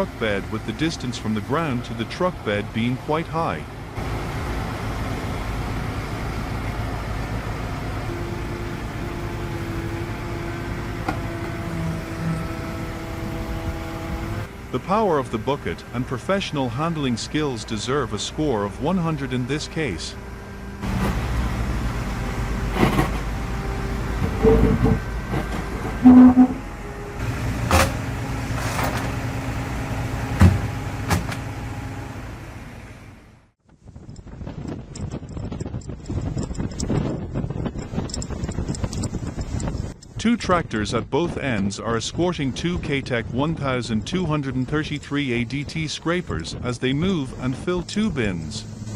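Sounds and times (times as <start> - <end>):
excavator diesel engine running: 0.0 - 33.5, 42.4 - 48.9
steady whine: 11.0 - 27.3
metallic clanks and knocks: 24.2 - 26.6.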